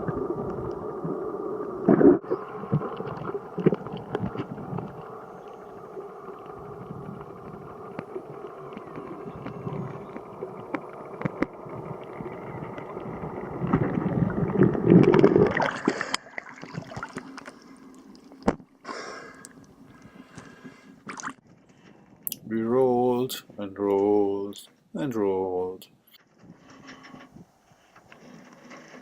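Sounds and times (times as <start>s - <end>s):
water rushing and gurgling: 0.0s - 20.0s
small knocks and splashes: 13.6s - 18.7s.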